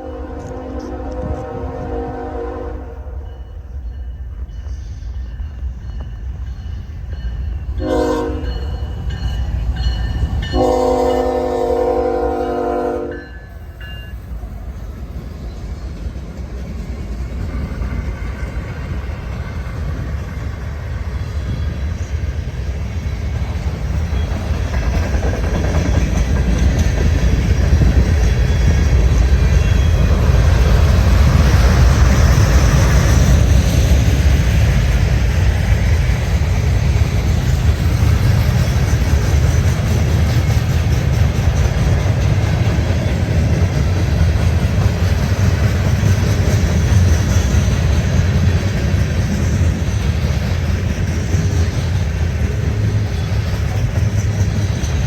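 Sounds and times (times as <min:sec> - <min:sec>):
locomotive horn blasts: 0:00.0 - 0:03.3, 0:07.8 - 0:08.8, 0:10.5 - 0:13.3
train rumble and wheel clatter: 0:00.0 - 0:55.0.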